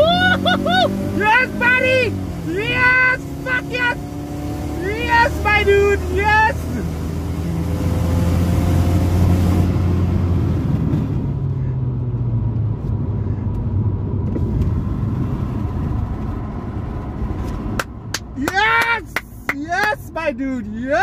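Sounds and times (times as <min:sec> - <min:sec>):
car engine droning: 0:00.0 - 0:21.0
road noise inside car: 0:00.0 - 0:21.0.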